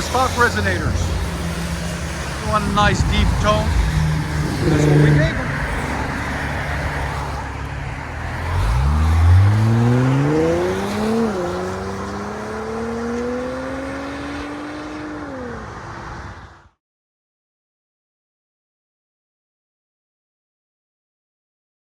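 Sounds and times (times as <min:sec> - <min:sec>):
car engine accelerating: 0:00.0 - 0:16.5.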